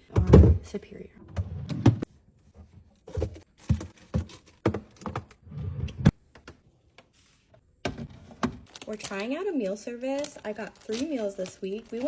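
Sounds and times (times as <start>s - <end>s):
groceries clacking on fridge shelves: 3.0s - 5.4s.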